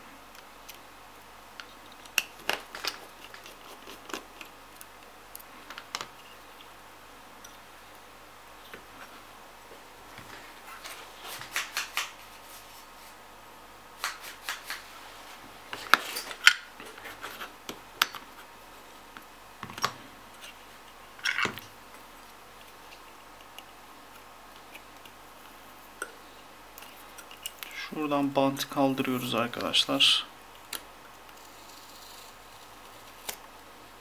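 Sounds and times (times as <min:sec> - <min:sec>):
tools clicking and scraping: 0:26.8 - 0:27.8.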